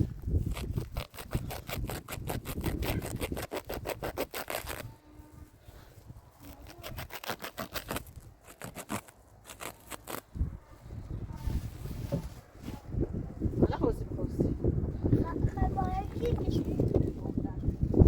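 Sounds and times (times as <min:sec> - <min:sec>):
rapid scraping strokes: 0:00.0 - 0:04.9, 0:06.4 - 0:10.3.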